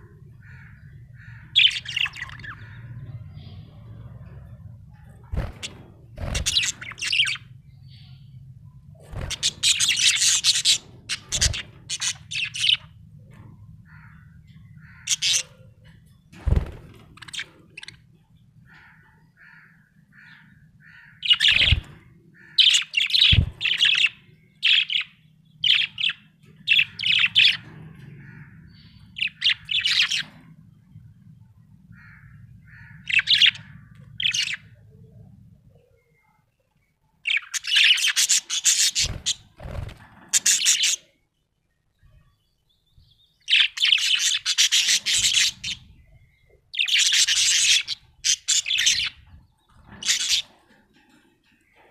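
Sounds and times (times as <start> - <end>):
parrot chirping and squawking: 4.9 - 8.2, 9.2 - 13.0, 13.9 - 15.8, 37.2 - 41.1, 43.4 - 50.6.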